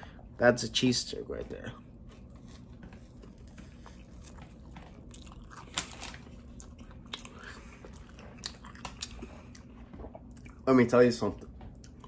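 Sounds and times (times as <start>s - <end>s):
person chewing food: 1.8s - 10.7s, 11.4s - 12.0s.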